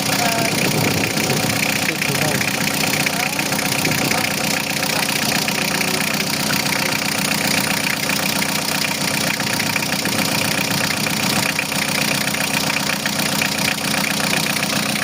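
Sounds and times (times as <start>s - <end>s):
van engine idling: 0.0s - 15.0s.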